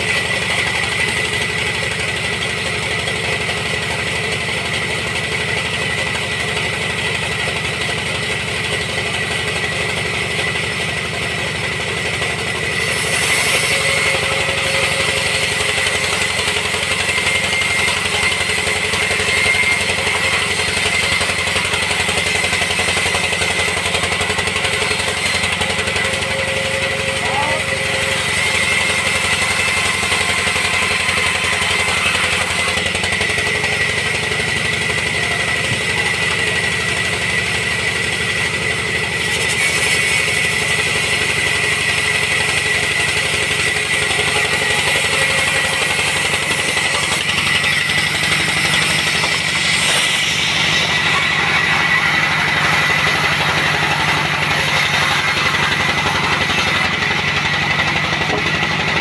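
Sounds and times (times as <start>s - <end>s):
sawmill engine running: 0.0s - 59.0s
high machine whine: 47.0s - 59.0s.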